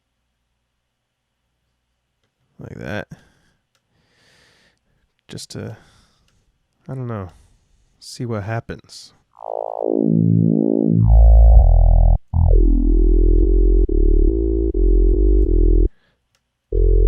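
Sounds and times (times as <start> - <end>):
deep synthesizer bass: 9.4 - 15.9, 16.7 - 17.0.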